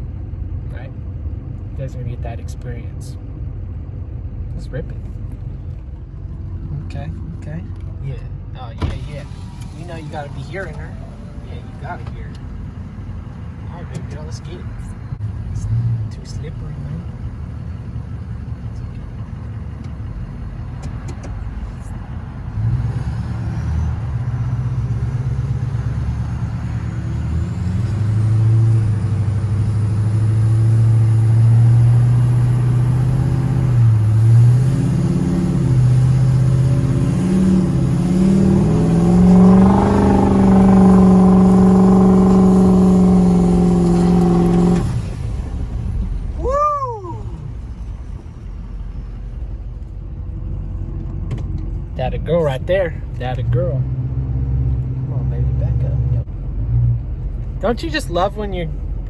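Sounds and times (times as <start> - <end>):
diesel engine revving hard: 8.8 - 50.8, 51.9 - 58.7
wheels spinning on snow: 36.7 - 49.5.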